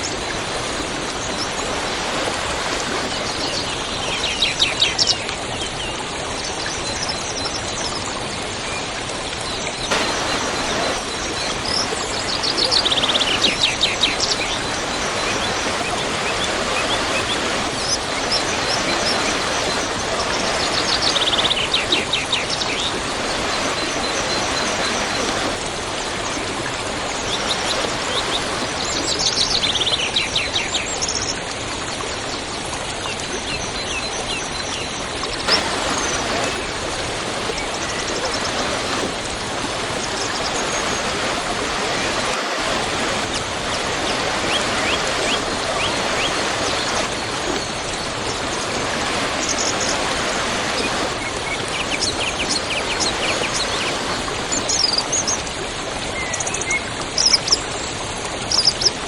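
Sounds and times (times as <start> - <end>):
waterfall rushing: 0.0 - 5.5, 6.5 - 31.0, 35.2 - 56.2
songbird singing falling notes: 9.5 - 30.8.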